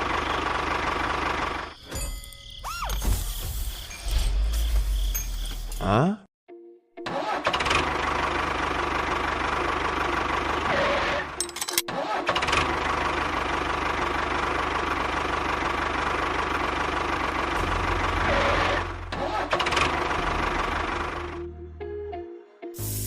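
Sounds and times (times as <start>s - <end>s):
tractor engine running: 0.0s - 1.9s, 7.1s - 21.4s.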